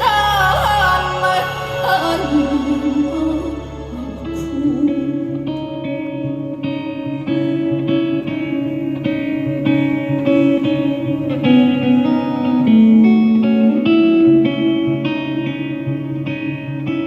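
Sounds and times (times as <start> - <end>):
long held notes: 0.0 - 17.0
live band with guitar chords: 4.8 - 17.0.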